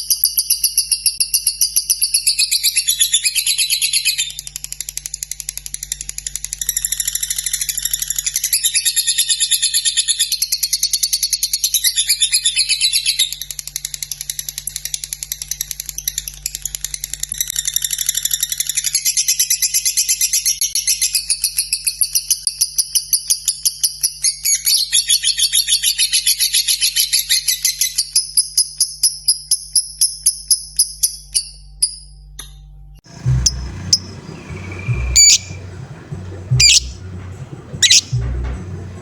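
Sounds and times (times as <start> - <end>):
lovebird chattering: 33.1 - 39.0.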